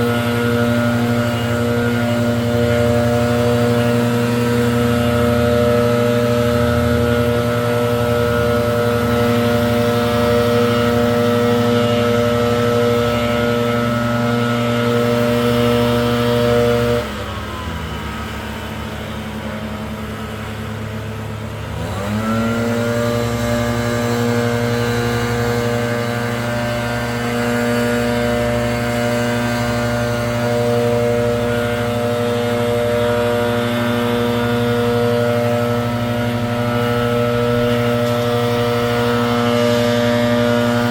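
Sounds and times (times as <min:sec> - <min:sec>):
gas leaf blower running: 0:00.0 - 0:40.9.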